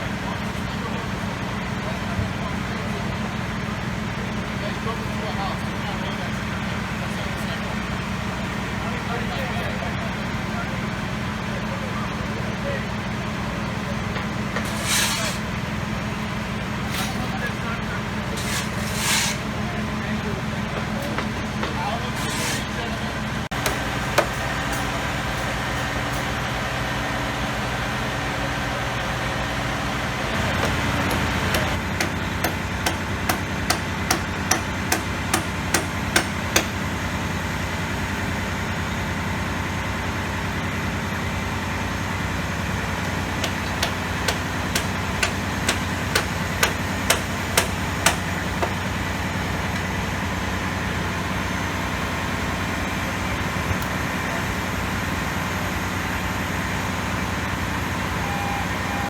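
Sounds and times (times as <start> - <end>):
vehicle engine idling: 0.0 - 18.7, 19.4 - 59.0
sharp hammer-like blows: 43.4 - 48.8.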